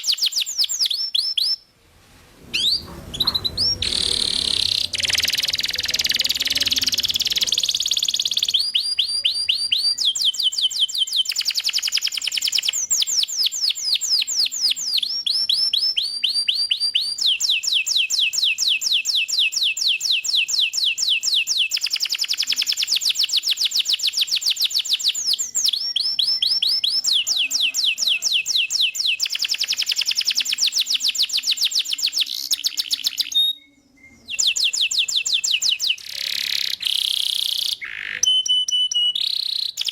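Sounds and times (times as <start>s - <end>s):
canary singing rolled trills: 2.4s - 17.8s, 23.8s - 39.9s.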